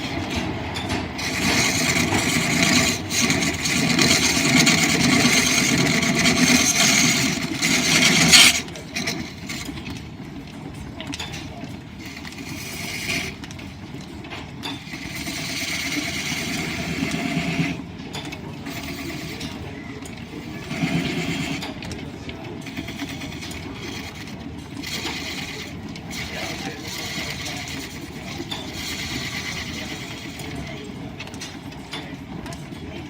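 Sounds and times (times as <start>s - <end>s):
wood lathe running: 0.0s - 10.2s, 11.9s - 13.6s, 14.8s - 17.9s, 18.5s - 31.0s
turning tool cutting wood: 1.1s - 9.9s, 12.0s - 13.4s, 14.9s - 17.8s, 18.7s - 19.6s, 20.4s - 21.8s, 22.6s - 30.7s.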